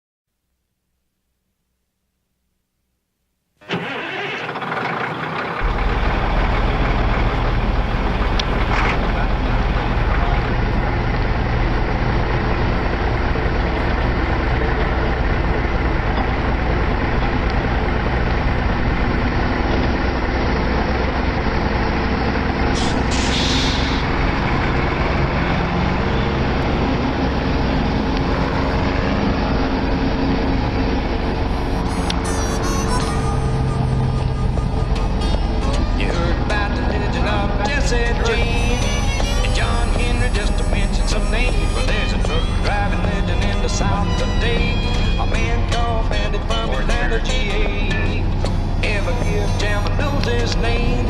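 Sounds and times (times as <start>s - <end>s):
vehicle engine and road noise: 3.6s - 51.0s
short hiss: 22.8s - 24.0s.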